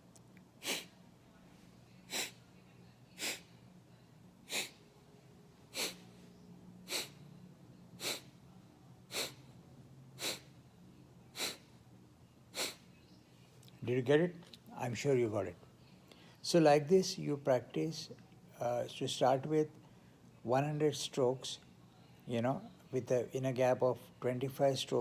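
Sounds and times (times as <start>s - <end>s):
quiet inhalations: 0.5s - 5.0s, 5.7s - 9.6s, 10.2s - 10.6s, 11.3s - 11.9s, 12.5s - 13.6s, 15.7s - 16.4s, 19.8s - 20.4s
forceful nasal exhalations: 0.6s - 0.9s, 2.1s - 2.4s, 3.2s - 3.5s, 4.5s - 4.8s, 5.7s - 6.0s, 6.8s - 7.2s, 8.0s - 8.4s, 9.1s - 9.4s, 10.2s - 10.5s, 11.4s - 11.7s, 12.6s - 12.8s.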